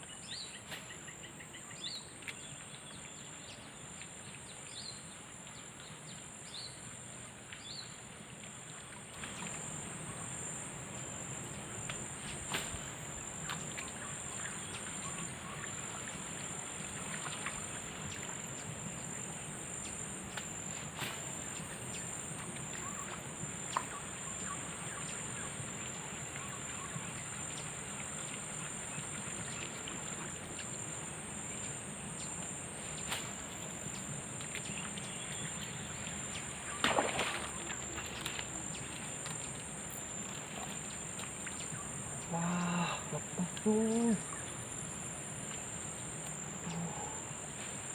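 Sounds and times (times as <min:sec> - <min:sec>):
high-pitched insect drone: 0:41.6 - 0:45.2.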